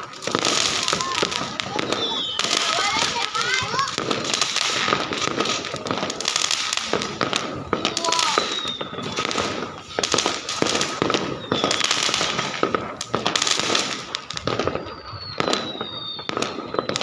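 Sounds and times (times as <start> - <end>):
fireworks bangs: 0.0 - 17.0
fireworks crackling: 0.0 - 17.0
whistles gliding down in pitch: 1.8 - 2.9, 8.2 - 9.2, 11.3 - 12.0, 14.8 - 17.0.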